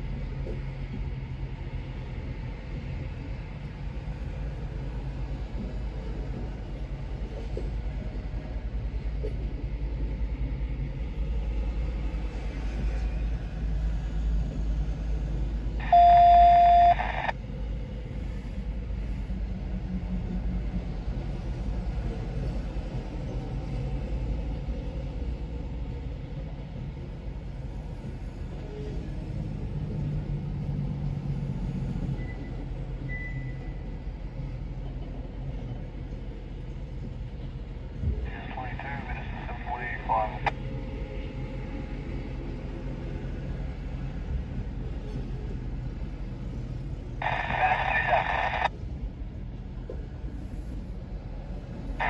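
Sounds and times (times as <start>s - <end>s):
loud beep: 15.8s - 17.3s.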